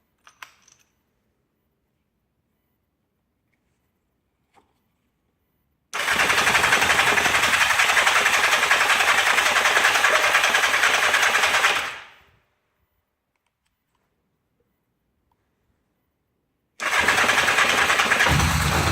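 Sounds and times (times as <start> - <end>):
electric starter cranking engine: 16.8 - 18.9.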